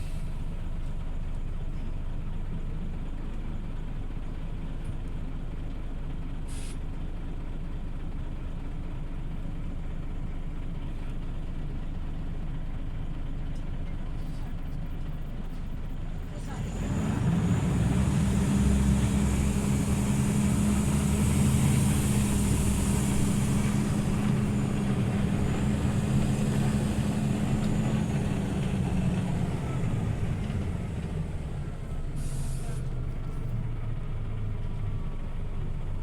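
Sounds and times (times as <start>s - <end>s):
bus engine drone: 0.0s - 36.0s
compressed air hiss: 18.6s - 27.4s.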